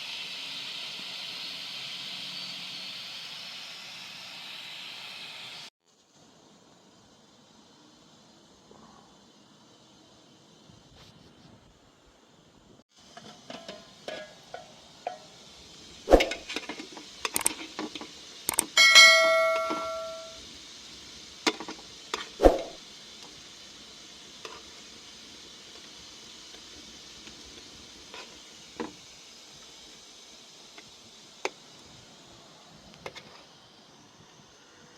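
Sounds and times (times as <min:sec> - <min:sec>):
steady hiss: 0:00.0 - 0:34.9
dishes and cookware clinking: 0:13.2 - 0:15.3, 0:18.8 - 0:20.4
ringing strike on pot: 0:18.8 - 0:20.4.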